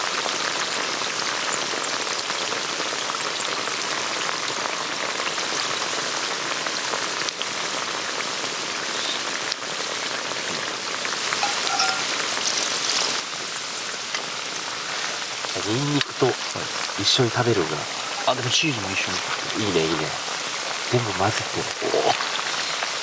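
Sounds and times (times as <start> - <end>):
mountain stream babbling: 11.4 - 12.2, 14.7 - 23.0.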